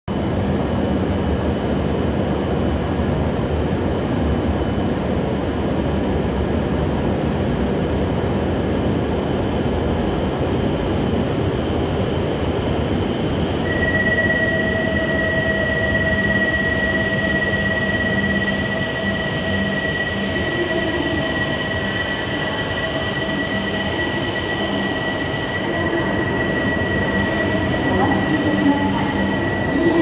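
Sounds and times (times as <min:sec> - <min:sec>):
high brake squeal: 0:08.6 - 0:30.0.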